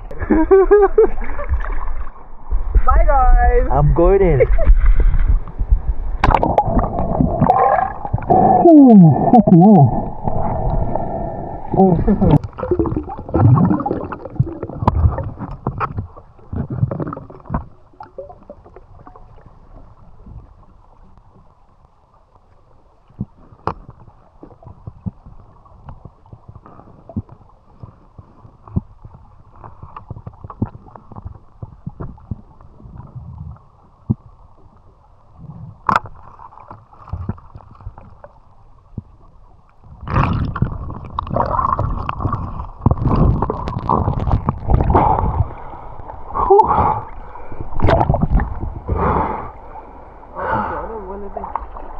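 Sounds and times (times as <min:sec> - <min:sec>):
muffled underwater water movement: 0:00.0 - 0:51.9
water splashing and sloshing: 0:00.0 - 0:51.9
small underwater clicks and knocks: 0:14.1 - 0:22.0, 0:23.0 - 0:45.4, 0:47.7 - 0:48.7.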